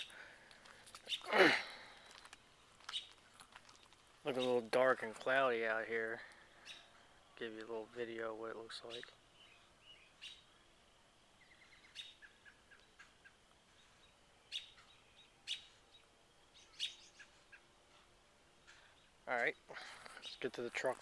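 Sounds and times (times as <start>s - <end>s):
faint birdsong chirping: 0.0s - 21.0s
sharp bird calls: 1.0s - 1.4s, 11.4s - 16.0s, 16.6s - 17.7s.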